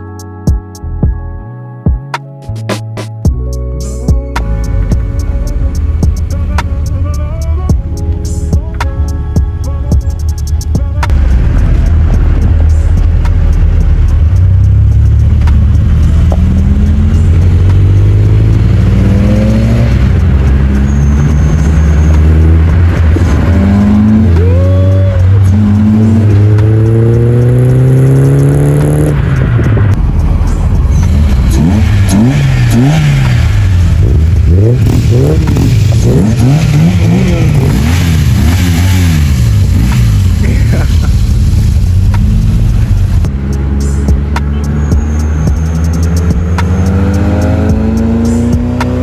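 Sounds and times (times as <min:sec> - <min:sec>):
car engine shifting through gears: 0:04.4 - 0:49.0
engine revving in quick blips: 0:11.0 - 0:49.0.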